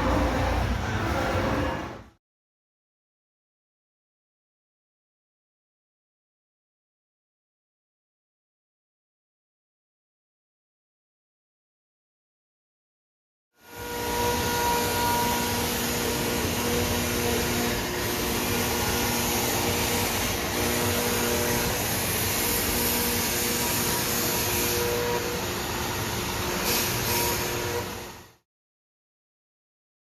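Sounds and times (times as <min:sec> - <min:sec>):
cnc router rushing noise: 0:00.0 - 0:02.1, 0:13.6 - 0:28.4.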